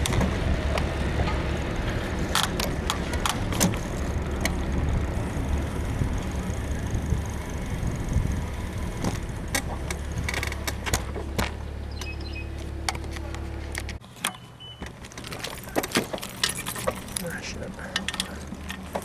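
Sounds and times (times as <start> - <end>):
steady low rumble: 0.0 - 14.0
bicycle suspension creaks and clicks: 0.0 - 19.0.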